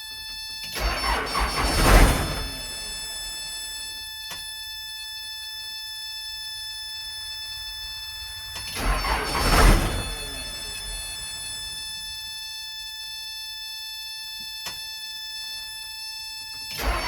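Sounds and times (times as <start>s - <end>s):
engine cranking: 0.7s - 3.7s, 7.2s - 12.1s, 16.7s - 17.0s
click: 4.3s - 4.5s, 14.4s - 14.8s.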